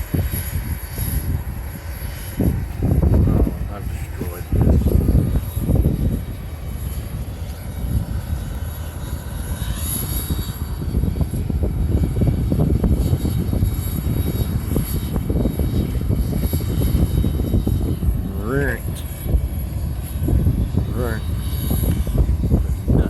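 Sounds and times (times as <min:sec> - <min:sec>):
jet engine crackling rumble: 0:00.0 - 0:23.0
jet engine whine: 0:00.0 - 0:23.0.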